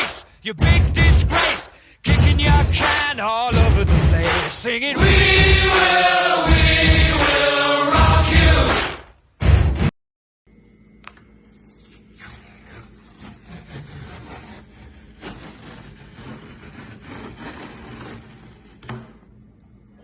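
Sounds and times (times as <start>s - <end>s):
tool scraping wood: 11.5s - 19.1s.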